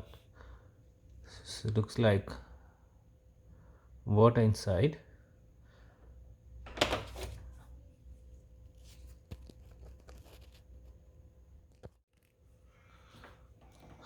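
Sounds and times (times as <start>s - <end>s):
rustling scrape: 8.7s - 11.0s.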